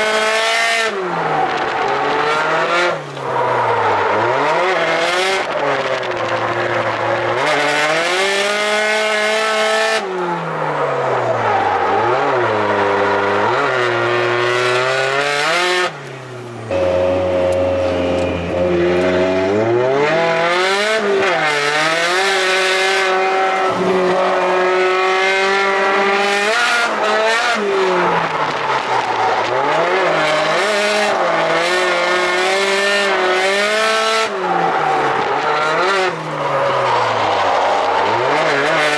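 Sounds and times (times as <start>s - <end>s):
car engine revving: 0.0s - 38.9s
tyres squealing: 27.3s - 38.9s.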